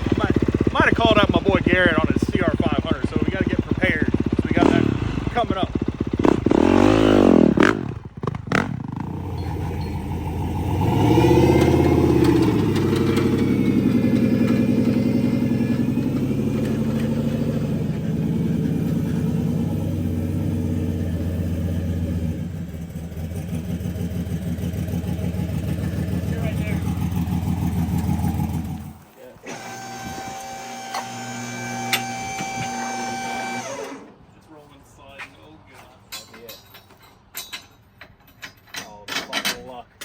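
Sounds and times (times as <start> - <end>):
vehicle engine revving: 0.0 - 34.1.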